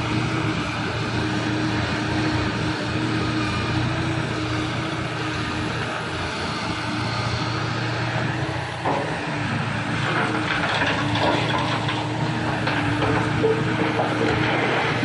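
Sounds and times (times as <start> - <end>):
heavy diesel machinery running: 0.0 - 15.0.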